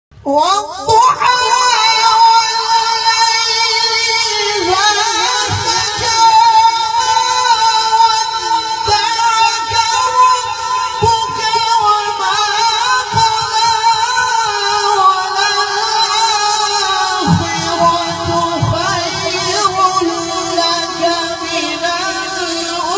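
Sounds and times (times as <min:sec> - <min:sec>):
man reciting melodically: 0:00.2 - 0:22.9.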